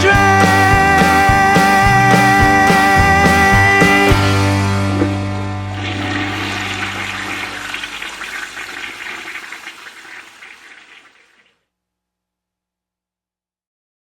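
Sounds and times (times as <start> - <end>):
toilet flushing: 5.7 - 11.5.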